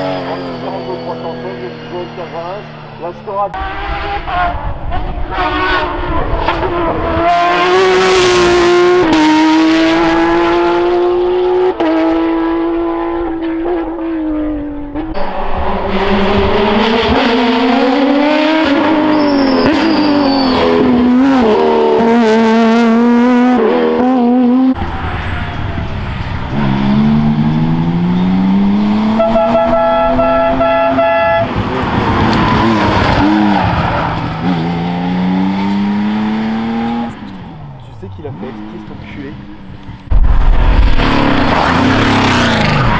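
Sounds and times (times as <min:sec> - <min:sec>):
rally car engines revving: 0:00.0 - 0:42.9
tyre squeal: 0:19.0 - 0:21.0.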